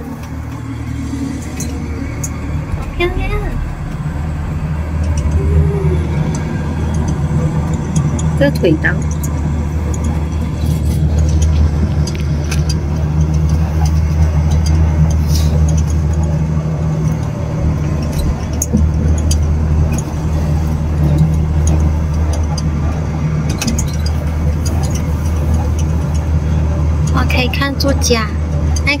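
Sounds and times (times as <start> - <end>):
light clicks and rattles: 0.0 - 29.0
rail pod running low hum: 0.0 - 29.0.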